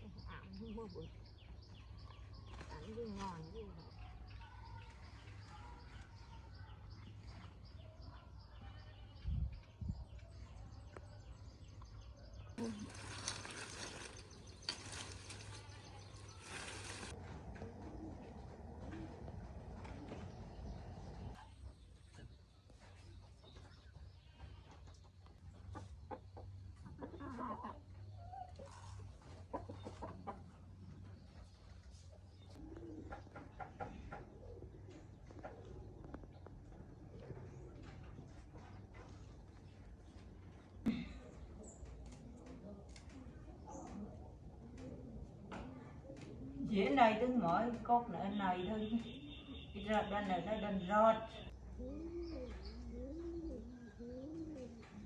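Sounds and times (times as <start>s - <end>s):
dry rustling and crackling: 12.6s - 17.5s
chickens clucking: 25.5s - 32.0s, 32.6s - 40.6s.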